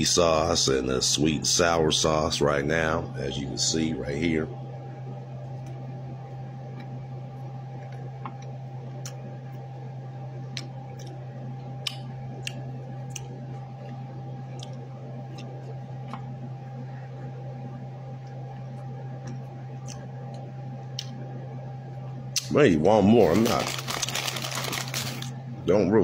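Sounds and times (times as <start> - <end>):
low hum: 0.0 - 26.0
person chewing food: 11.8 - 16.3.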